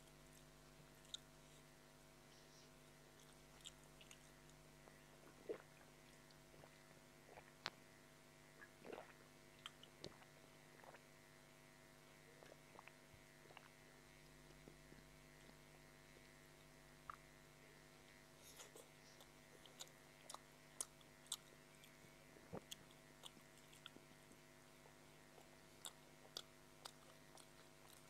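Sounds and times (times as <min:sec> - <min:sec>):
low electrical hum: 0:00.0 - 0:28.0
chewing mouth clicks: 0:03.2 - 0:04.6, 0:08.9 - 0:11.0, 0:18.5 - 0:28.0.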